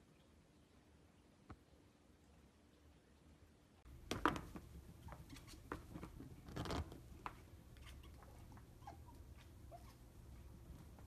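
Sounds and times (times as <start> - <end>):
claws tapping on window pane: 3.9 - 8.8
claws scraping on glass: 5.1 - 10.2.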